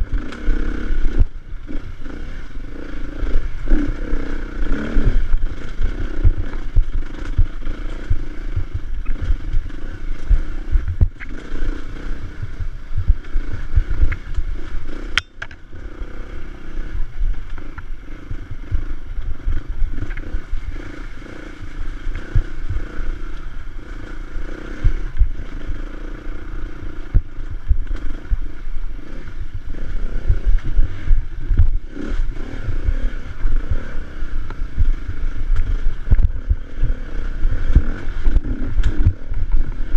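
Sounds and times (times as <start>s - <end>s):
sharp click: 15.2s - 15.6s.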